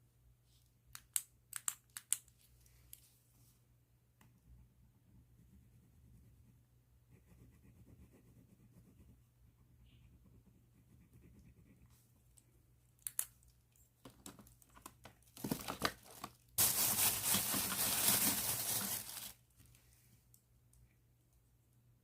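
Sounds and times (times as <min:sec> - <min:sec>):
plastic bag crinkling: 0:15.3 - 0:19.4.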